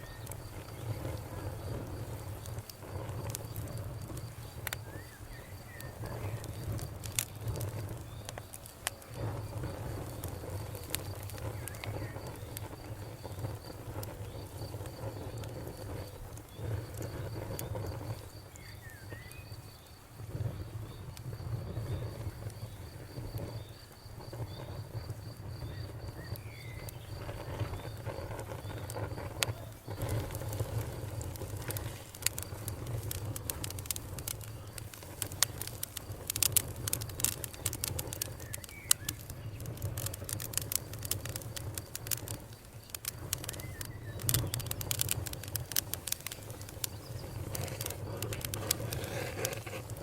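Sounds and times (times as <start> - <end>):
campfire crackling and popping: 0.0 - 50.0
cricket chirping: 0.0 - 50.0
bird chirps: 43.4 - 44.8.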